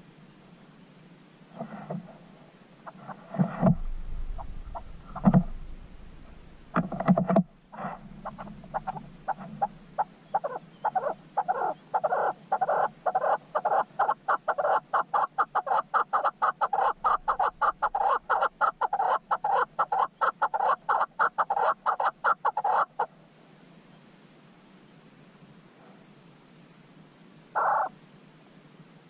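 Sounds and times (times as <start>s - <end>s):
bird clucking: 2.8s - 23.1s, 27.6s - 27.9s.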